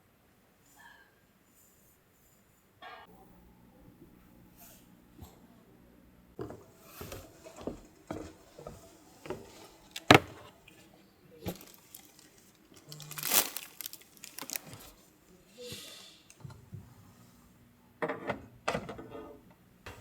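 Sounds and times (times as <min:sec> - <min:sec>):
objects knocking and clattering: 0:10.0 - 0:10.5.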